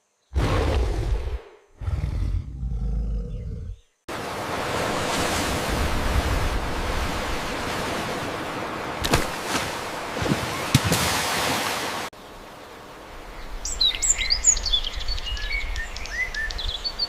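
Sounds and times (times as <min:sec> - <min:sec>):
deep animal roar: 0:00.4 - 0:03.9.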